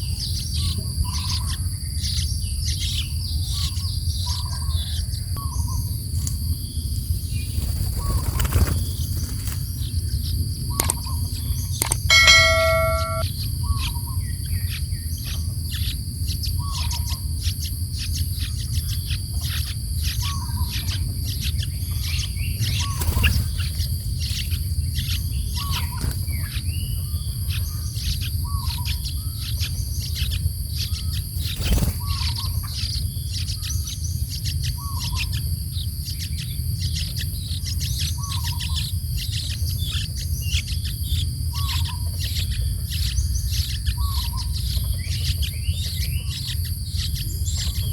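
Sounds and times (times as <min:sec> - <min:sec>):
birds chirping: 0:11.8 - 0:13.2.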